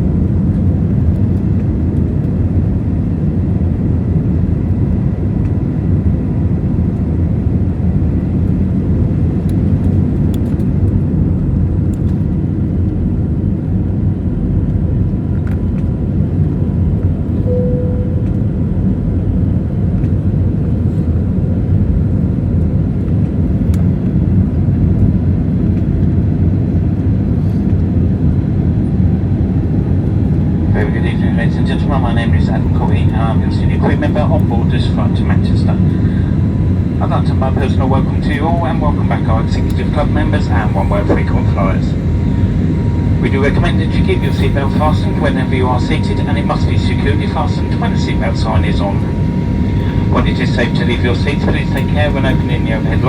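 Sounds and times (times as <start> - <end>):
airplane cabin engine roar: 0.0 - 53.0
faint steady whine: 17.3 - 20.1, 29.9 - 53.0
brief single tone: 17.4 - 18.8.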